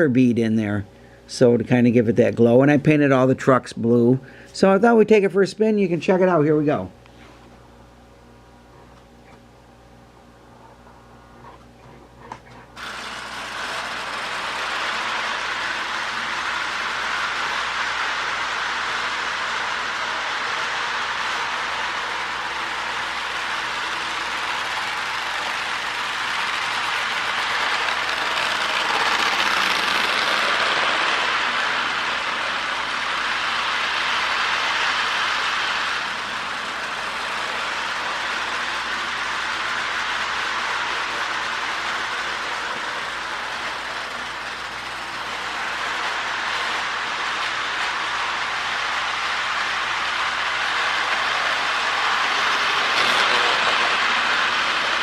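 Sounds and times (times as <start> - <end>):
wheels rattling over rails: 12.2 - 55.0
model train motor whir: 12.5 - 55.0.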